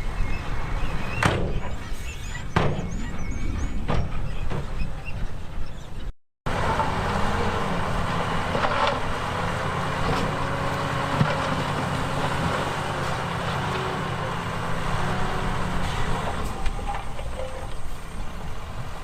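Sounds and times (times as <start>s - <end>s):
heavy diesel machinery running: 6.5s - 19.0s.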